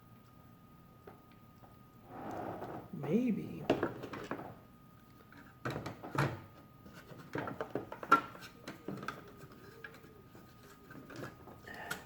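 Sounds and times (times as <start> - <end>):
light clicks and knocks of toy parts: 6.9 - 12.0.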